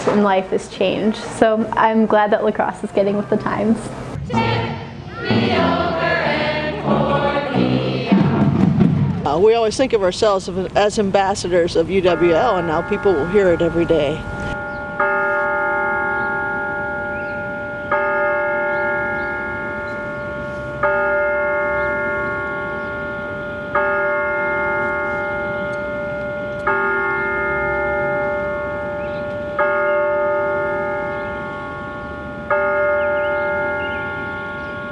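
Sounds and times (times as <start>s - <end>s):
tower bell tolling: 9.2s - 34.9s.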